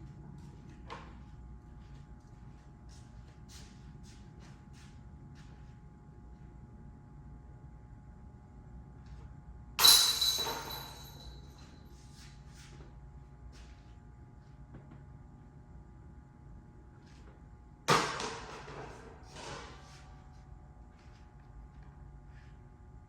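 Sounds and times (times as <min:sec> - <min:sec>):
disc striking basket chains: 0:09.8 - 0:11.6.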